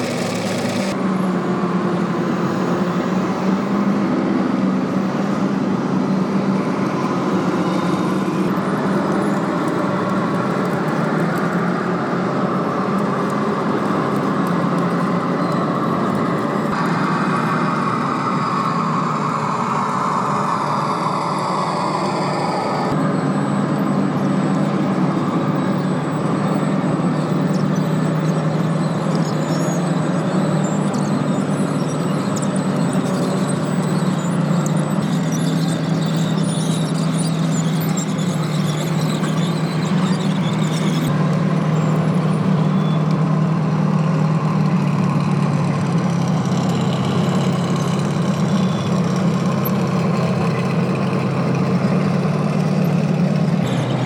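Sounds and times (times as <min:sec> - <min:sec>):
model vehicle engine drone: 0:00.0 - 0:54.0
high squeaks: 0:13.9 - 0:41.1, 0:52.9 - 0:54.0.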